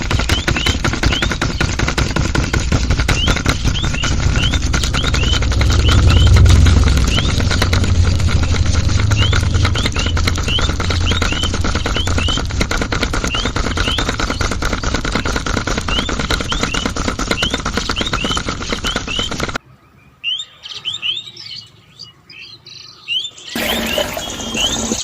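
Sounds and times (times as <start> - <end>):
loud dense rattling noise: 0.0 - 19.6
small bird chirping: 0.0 - 19.6.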